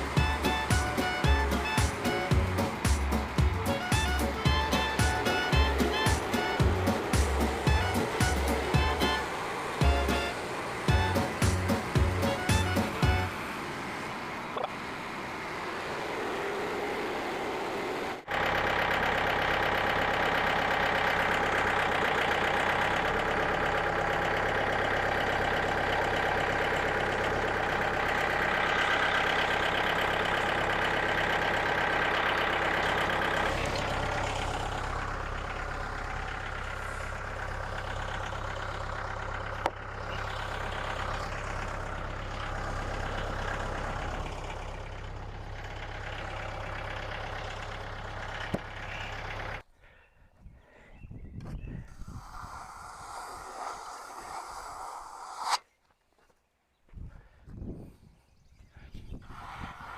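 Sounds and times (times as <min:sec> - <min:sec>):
small gas engine running: 0:00.0 - 0:49.6, 0:51.9 - 0:55.6
saw blade cutting wood: 0:51.9 - 0:55.6.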